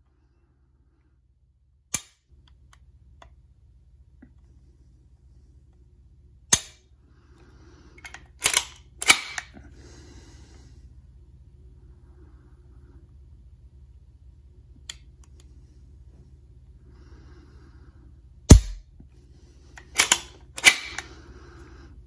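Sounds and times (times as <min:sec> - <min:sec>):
metallic trigger clicks: 0:08.0 - 0:09.5, 0:18.5 - 0:18.8, 0:19.8 - 0:21.1.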